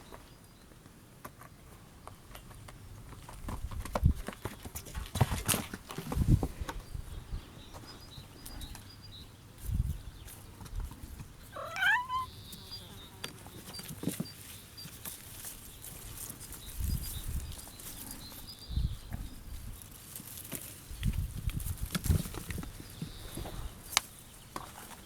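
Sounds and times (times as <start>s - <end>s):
kitten meowing: 11.6s - 12.3s.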